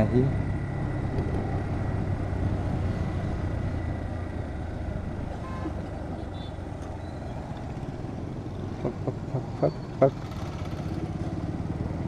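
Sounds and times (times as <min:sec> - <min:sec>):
motorcycle engine running: 0:00.4 - 0:12.0.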